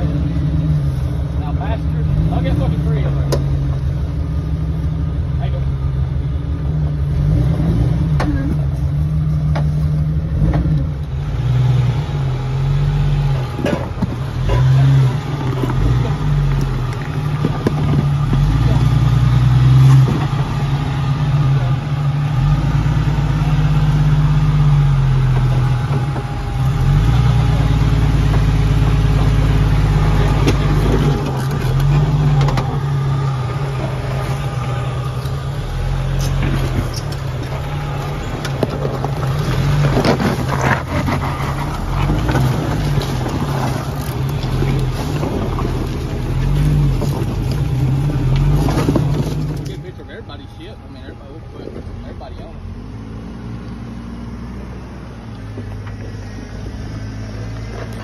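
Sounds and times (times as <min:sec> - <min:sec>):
knocks and scrapes on rocks: 0:13.5 - 0:19.0, 0:30.0 - 0:32.7, 0:36.2 - 0:49.9.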